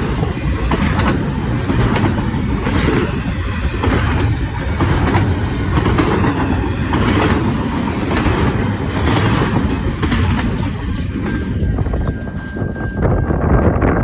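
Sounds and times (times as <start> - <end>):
freight train wheels rumbling on rail: 0.0 - 14.0.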